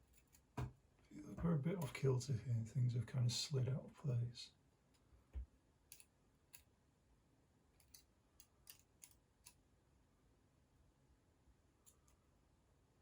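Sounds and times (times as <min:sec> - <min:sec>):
small metal parts clicking: 0:00.0 - 0:00.5, 0:05.9 - 0:06.7, 0:07.8 - 0:09.6.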